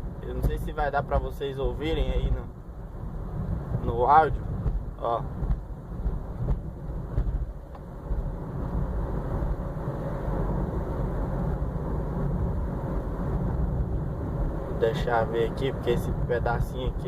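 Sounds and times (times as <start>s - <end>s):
car cabin road noise: 0.0s - 17.0s
suspension clunking: 2.1s - 14.8s.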